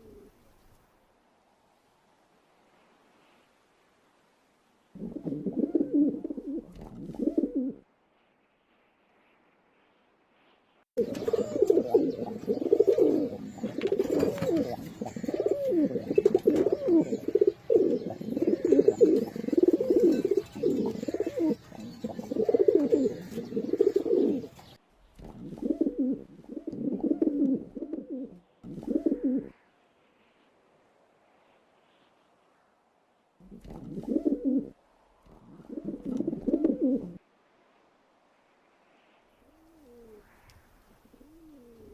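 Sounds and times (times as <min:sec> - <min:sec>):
pigeons cooing: 0:00.0 - 0:00.4, 0:05.0 - 0:07.8, 0:11.0 - 0:29.5, 0:33.4 - 0:37.2, 0:39.5 - 0:40.3, 0:41.0 - 0:41.9.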